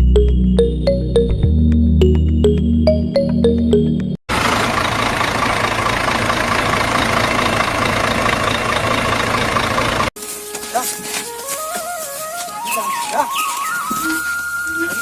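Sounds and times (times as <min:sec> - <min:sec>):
electronic background music: 0:00.0 - 0:04.2.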